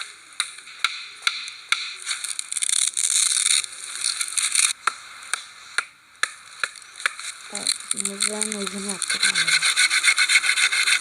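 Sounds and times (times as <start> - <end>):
scraping on wood: 7.9 - 11.0.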